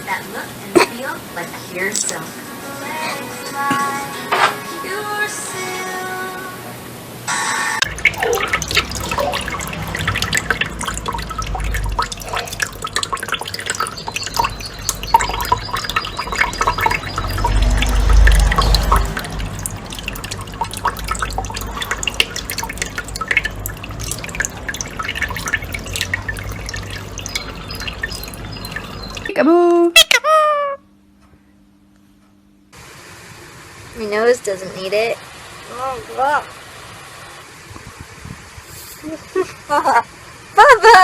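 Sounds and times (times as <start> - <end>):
water dripping and splashing: 7.8 - 29.4.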